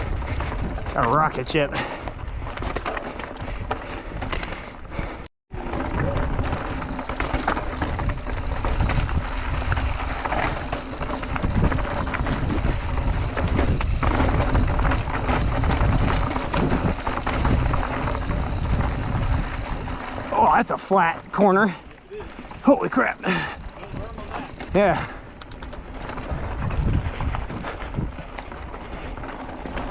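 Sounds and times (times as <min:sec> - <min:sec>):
bike rattling over rock: 0:00.0 - 0:29.9
wind on microphone: 0:07.8 - 0:20.3, 0:26.2 - 0:28.2.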